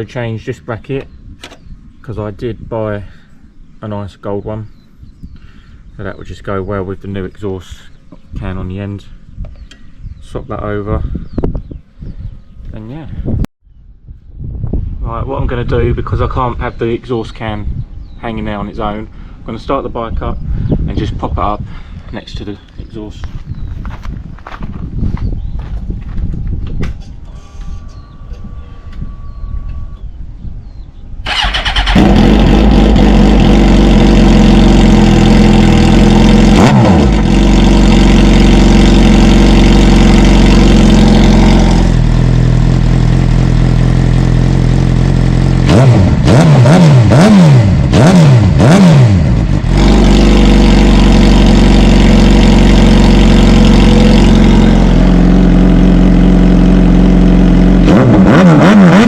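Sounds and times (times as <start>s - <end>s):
motorcycle engine starting and revving: 31.2s - 59.0s.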